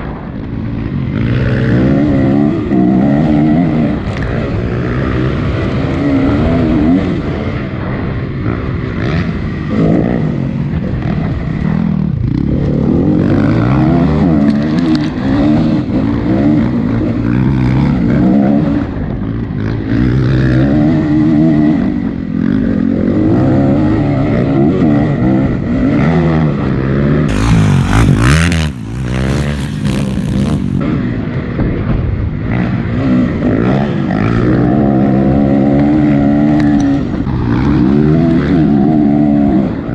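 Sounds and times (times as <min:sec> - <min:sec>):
dirt bike engine revving: 0:27.3 - 0:31.0.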